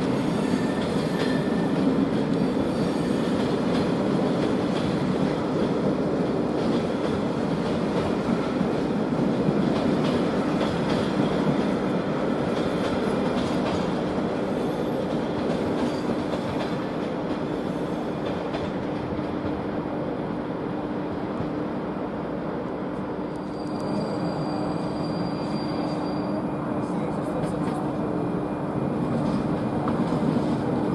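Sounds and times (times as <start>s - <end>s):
train wheels clicking over rail joints: 9.4s - 19.6s.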